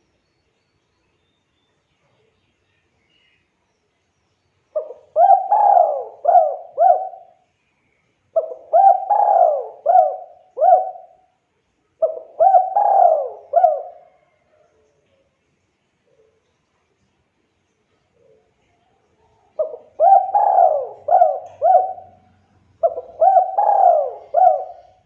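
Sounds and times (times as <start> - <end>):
dove cooing: 4.8 - 7.4, 8.4 - 11.2, 12.0 - 14.4, 19.6 - 25.0.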